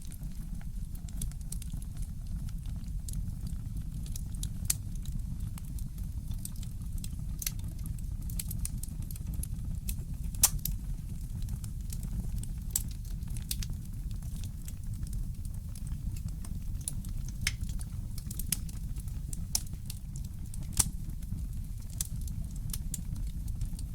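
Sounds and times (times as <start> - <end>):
low fire rumble: 0.0 - 23.9
wood fire crackling: 0.0 - 23.9.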